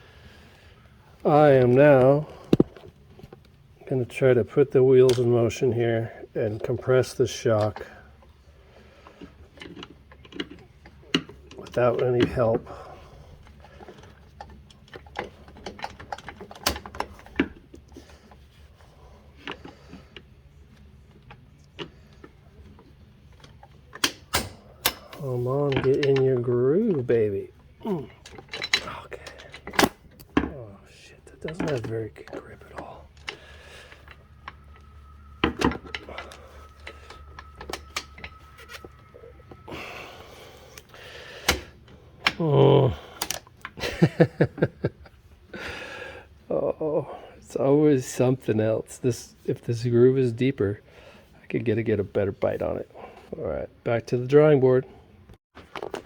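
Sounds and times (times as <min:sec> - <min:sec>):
metal tools clicking and knocking: 0:28.1 - 0:30.5, 0:31.4 - 0:39.7
faint steady high tone: 0:31.8 - 0:40.8.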